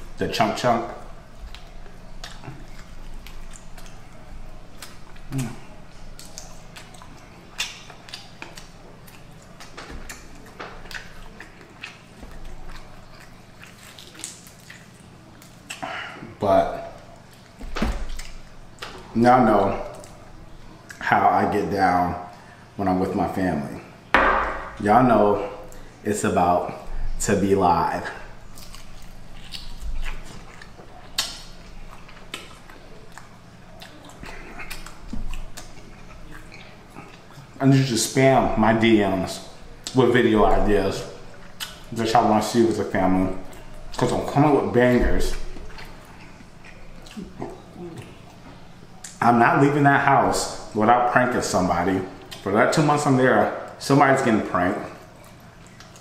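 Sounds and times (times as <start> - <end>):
steady low hum: 0.0 - 56.0
crisp chewing crunches: 1.4 - 15.9, 28.4 - 37.6
wet mouth clicks: 41.6 - 41.8.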